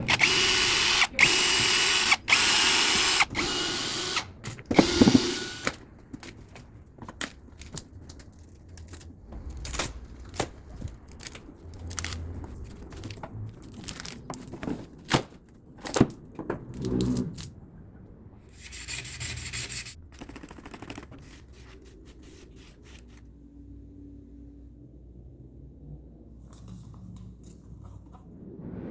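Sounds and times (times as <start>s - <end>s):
woodworking power tool running: 0.0s - 5.7s.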